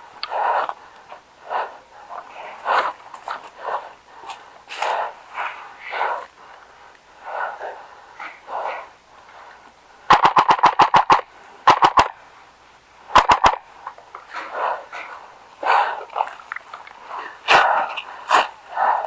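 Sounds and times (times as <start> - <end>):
airsoft rifle bursts: 10.1 - 12.2, 13.1 - 13.6.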